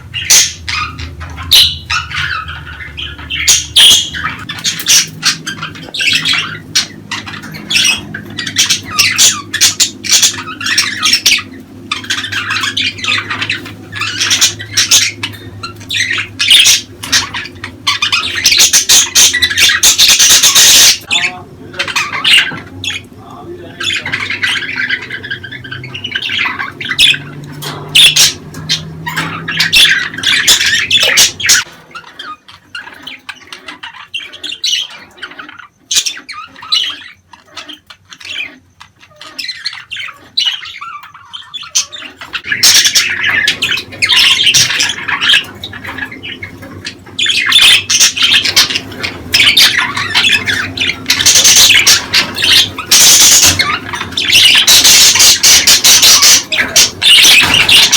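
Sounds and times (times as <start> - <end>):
budgerigars chattering and squawking: 0.0 - 57.9.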